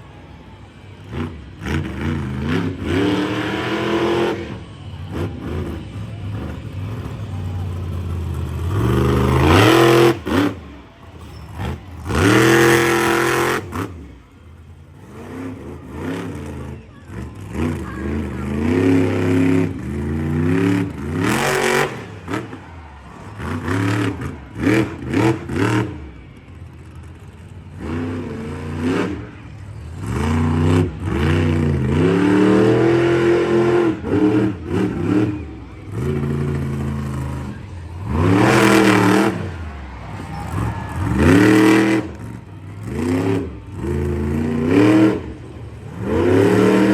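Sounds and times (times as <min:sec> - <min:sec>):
truck engine revving: 0:00.0 - 0:46.9.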